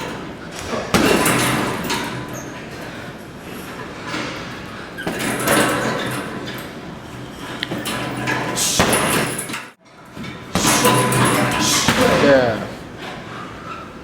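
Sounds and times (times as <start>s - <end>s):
strikes thudding and slapping: 0.6s - 2.4s, 5.0s - 6.4s, 7.6s - 9.7s, 10.5s - 12.7s.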